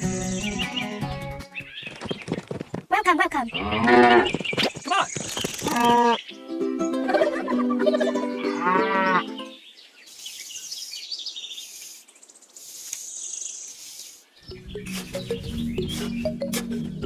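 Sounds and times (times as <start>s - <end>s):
cow mooing: 3.6s - 4.3s, 8.6s - 9.3s
high-pitched chirps: 14.5s - 17.0s
light music: 14.5s - 17.0s.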